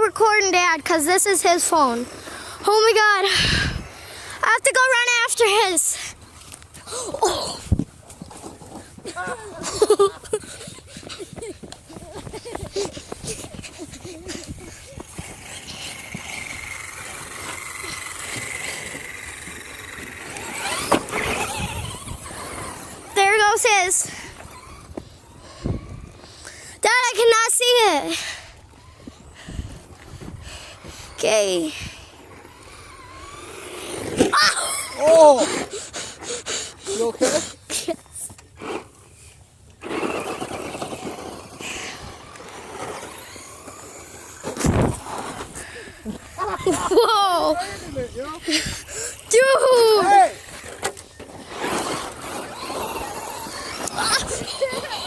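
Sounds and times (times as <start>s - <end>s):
toy truck motor whining: 12.5s - 55.0s.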